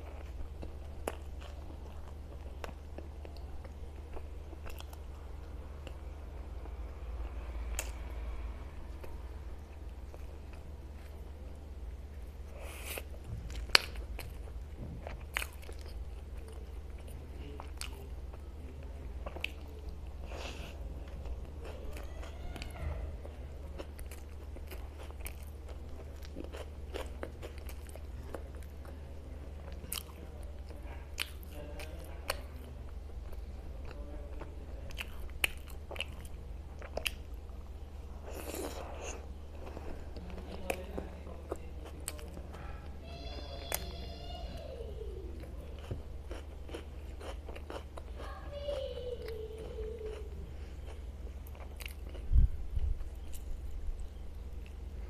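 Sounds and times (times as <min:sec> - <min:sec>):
chewing with mouth clicks: 0:00.0 - 0:05.1, 0:12.5 - 0:22.7, 0:23.3 - 0:37.6, 0:38.2 - 0:42.7, 0:45.4 - 0:48.4, 0:49.2 - 0:55.0
steady low hum: 0:00.0 - 0:55.0.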